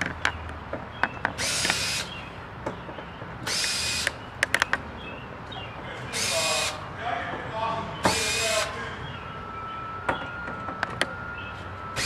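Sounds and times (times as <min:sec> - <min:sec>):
sharp metal clicks: 0:00.0 - 0:04.8
cordless drill whirring: 0:01.4 - 0:02.2, 0:03.4 - 0:04.2, 0:06.1 - 0:06.8, 0:08.1 - 0:08.7, 0:11.3 - 0:12.0.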